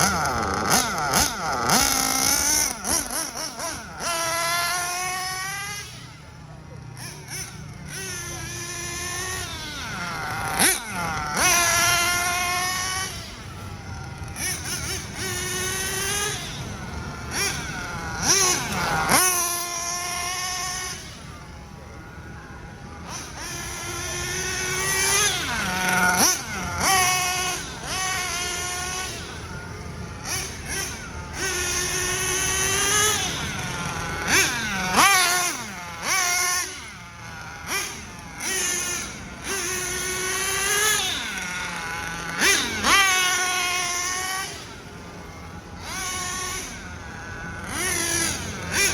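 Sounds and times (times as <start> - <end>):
high-revving nitro engine whining: 0.0 - 48.9.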